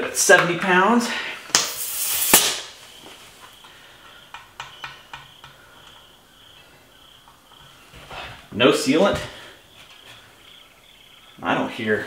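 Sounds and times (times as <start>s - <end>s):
air hissing at tire valve: 1.5s - 2.9s.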